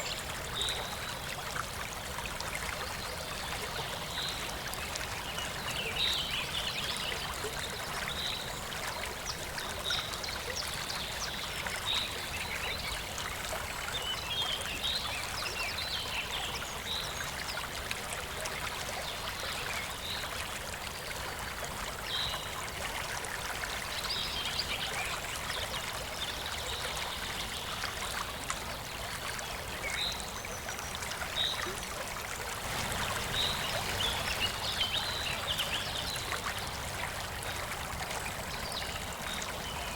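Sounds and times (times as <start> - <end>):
waterfall rushing: 32.6 - 35.3.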